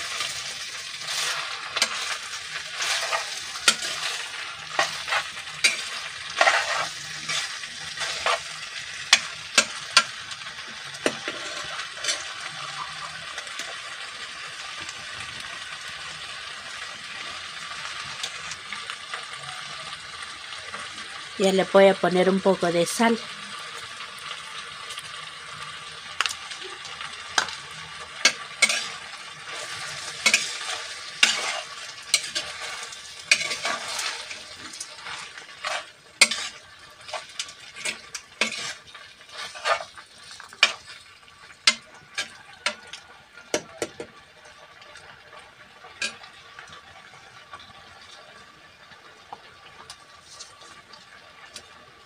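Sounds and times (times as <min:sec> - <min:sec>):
vegetables sizzling in oil: 0:00.0 - 0:52.0.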